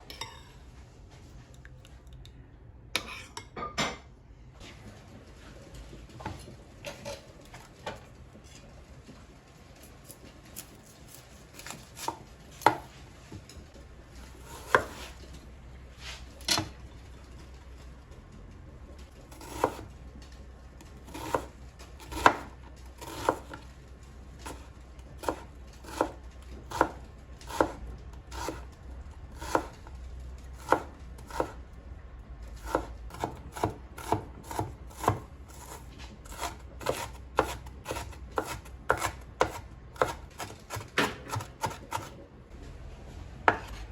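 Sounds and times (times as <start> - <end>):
knife chopping on cutting board: 10.6 - 12.9, 14.4 - 15.2, 19.3 - 19.8, 21.1 - 23.6, 25.2 - 28.6, 29.4 - 29.8, 30.6 - 31.6, 32.6 - 42.2, 43.5 - 43.9.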